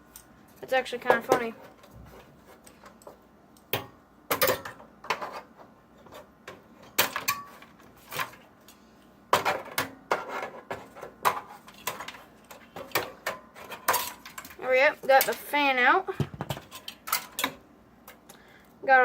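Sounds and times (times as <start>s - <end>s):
knocks and clatters of computer case: 9.3s - 12.2s, 16.1s - 16.8s.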